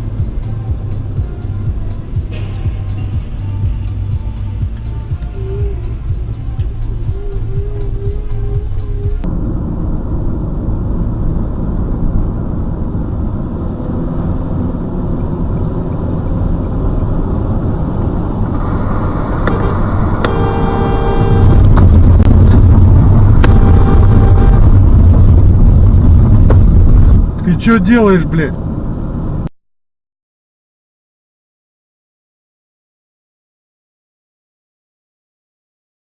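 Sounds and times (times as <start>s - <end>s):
road and engine rumble: 0.0s - 29.5s
car horn: 19.4s - 25.4s.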